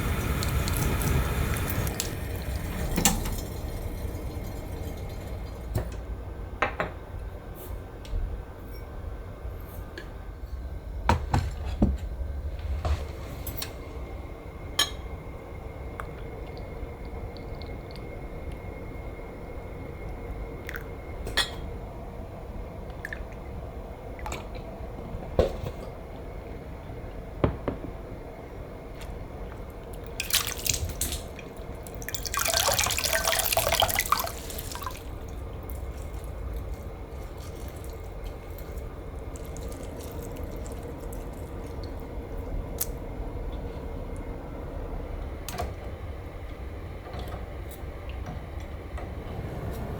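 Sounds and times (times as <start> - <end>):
water dripping: 0.0 - 5.7, 29.8 - 44.3
water running from tap: 0.0 - 5.8, 30.1 - 42.8.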